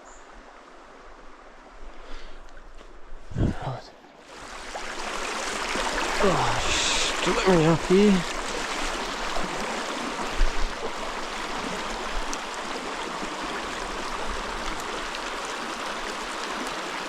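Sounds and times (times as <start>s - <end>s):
water rushing over rocks: 4.3s - 17.0s.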